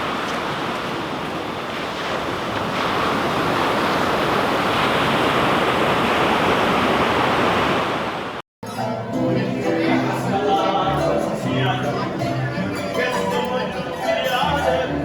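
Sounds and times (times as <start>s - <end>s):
ocean surf breaking on beach: 0.0s - 8.4s.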